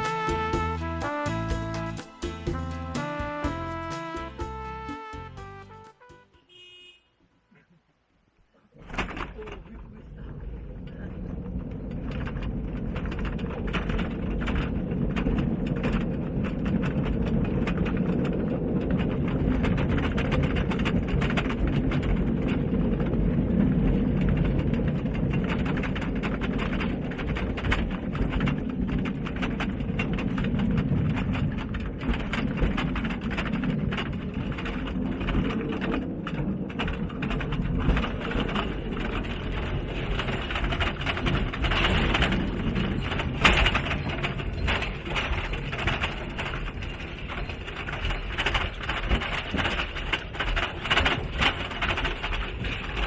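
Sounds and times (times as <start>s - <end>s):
wheels rattling and clattering: 8.9s - 53.0s
trolley train on rails: 13.1s - 53.0s.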